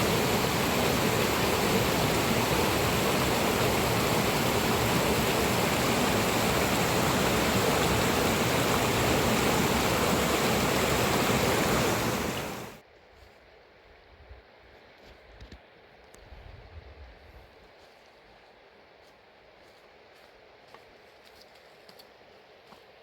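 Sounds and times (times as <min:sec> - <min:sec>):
river water rushing: 0:00.0 - 0:12.8.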